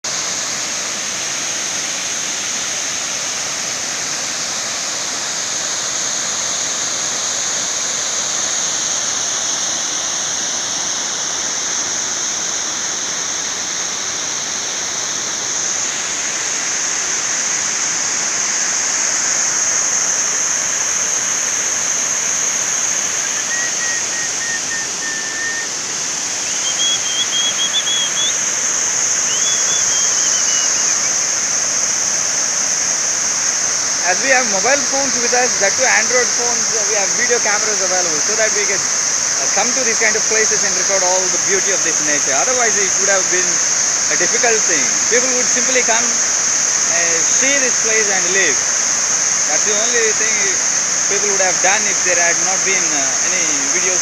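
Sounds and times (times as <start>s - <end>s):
waterfall rushing: 0.0s - 54.0s
thin wavering high tone: 22.9s - 28.4s.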